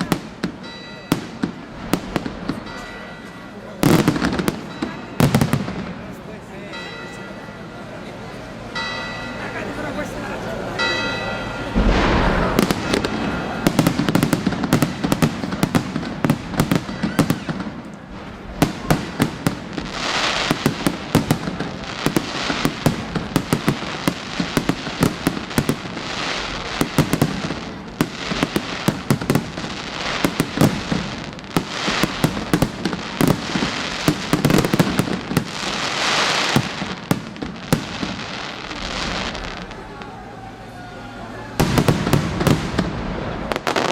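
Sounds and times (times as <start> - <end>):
rushing hiss of fireworks: 11.8 - 40.7, 41.5 - 43.9.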